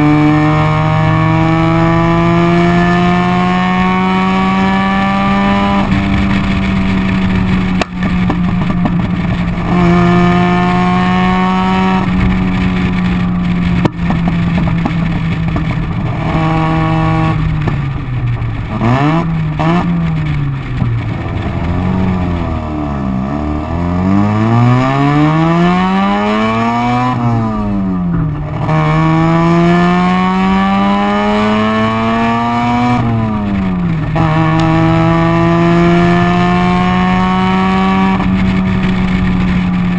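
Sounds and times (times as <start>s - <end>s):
exhaust backfires: 0.0s - 39.9s
rotary engine revving: 0.0s - 39.9s.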